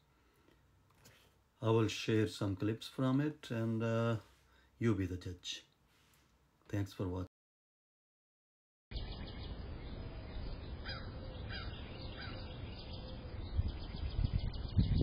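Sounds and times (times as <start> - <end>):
falling bird calls: 8.9 - 15.0.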